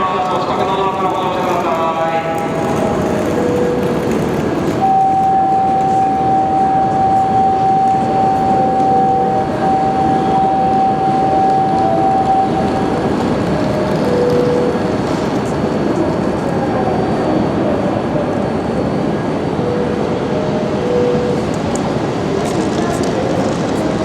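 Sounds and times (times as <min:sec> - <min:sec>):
train rumbling past: 0:00.0 - 0:24.0
high steady tone: 0:02.4 - 0:13.2.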